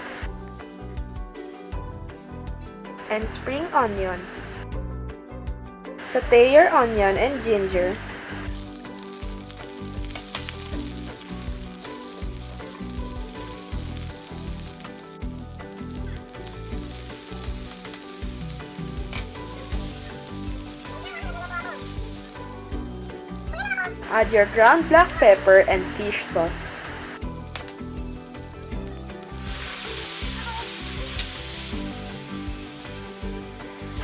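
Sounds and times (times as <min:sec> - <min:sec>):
onion sizzling in hot oil: 0:08.1 - 0:34.0.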